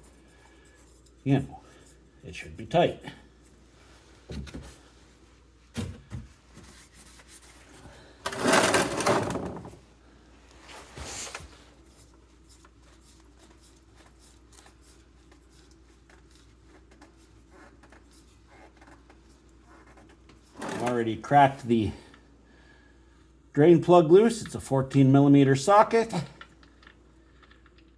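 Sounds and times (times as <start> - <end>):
rasping tool rattle: 8.3 - 9.7, 20.6 - 21.0.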